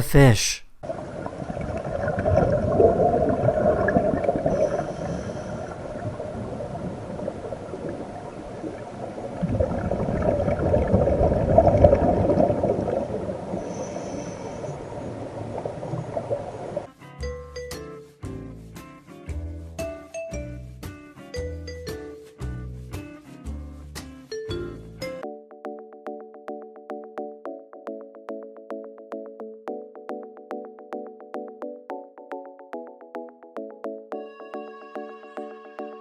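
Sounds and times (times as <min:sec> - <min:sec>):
underwater exhaled air bubbling: 0:00.8 - 0:16.9.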